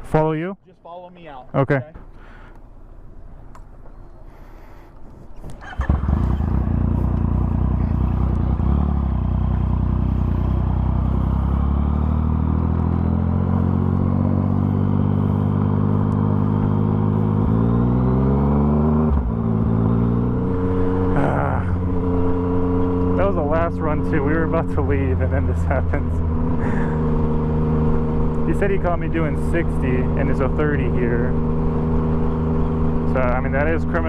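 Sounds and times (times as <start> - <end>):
motorcycle engine revving: 5.5 - 34.0.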